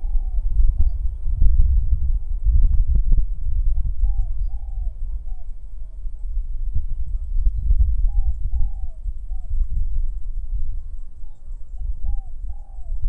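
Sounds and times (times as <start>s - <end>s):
dove cooing: 0.0s - 1.0s, 3.8s - 6.2s, 8.0s - 9.6s, 10.8s - 13.0s
wind rumble on microphone: 0.0s - 13.0s.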